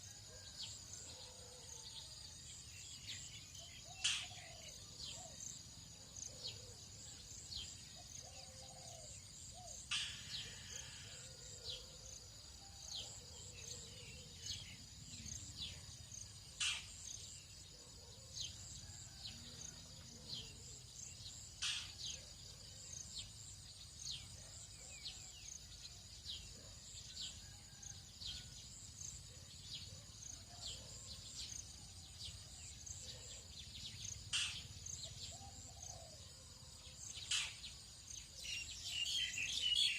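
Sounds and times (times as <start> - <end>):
sharp bird calls: 3.8 - 4.4, 8.4 - 10.8.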